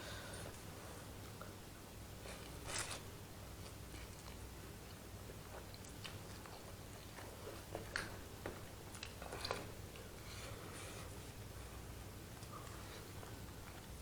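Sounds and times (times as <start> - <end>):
person chewing noodles: 3.6 - 11.4.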